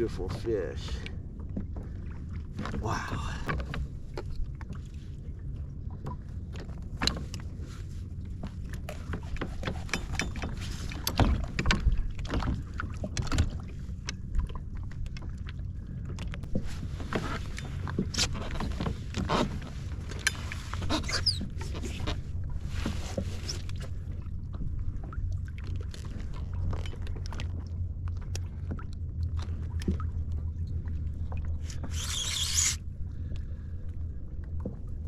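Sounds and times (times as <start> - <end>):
knocks and clatter on kayak: 8.4 - 14.2.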